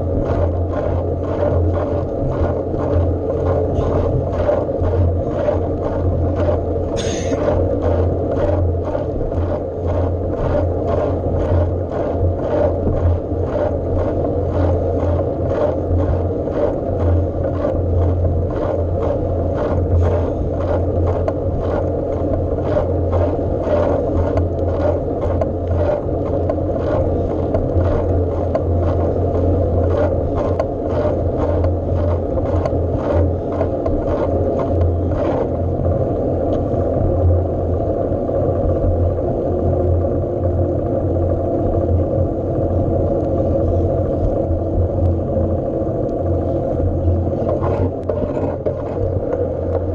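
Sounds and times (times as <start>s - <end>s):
bike rumbling on the move: 0.0s - 49.9s
sharp clicks and rattles: 43.0s - 49.9s.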